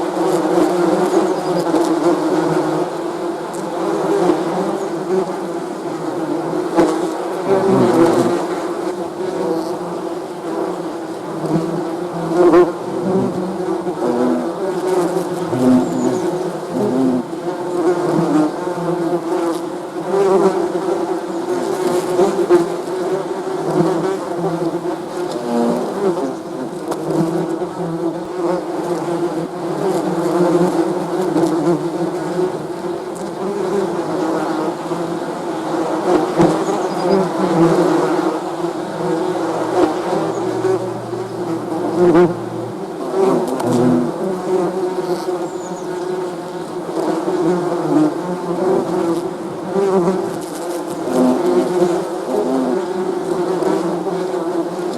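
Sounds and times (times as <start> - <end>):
bees buzzing: 0.2 - 54.8.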